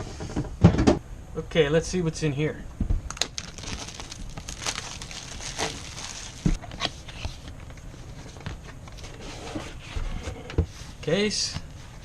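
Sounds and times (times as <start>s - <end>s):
cardboard and packing rustling: 3.2s - 12.0s.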